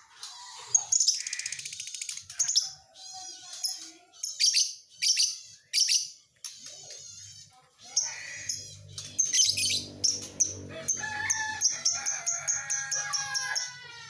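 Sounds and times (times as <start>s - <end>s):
shrill bird chirps: 0.2s - 10.6s
bird rattling trill: 8.0s - 13.7s.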